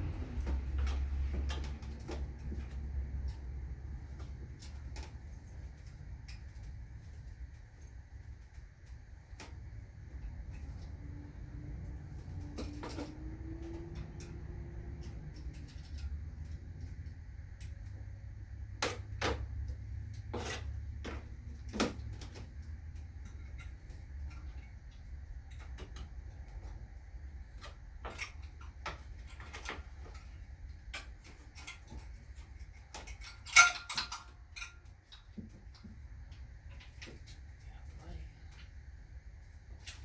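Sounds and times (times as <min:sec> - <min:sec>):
steady low rumble: 0:00.0 - 0:07.2.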